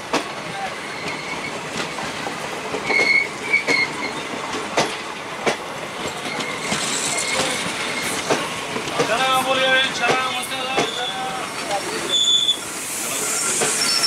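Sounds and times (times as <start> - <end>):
train wheels clacking over rail joints: 0.0 - 11.9
high wheel squeal: 6.4 - 8.3, 10.8 - 14.0.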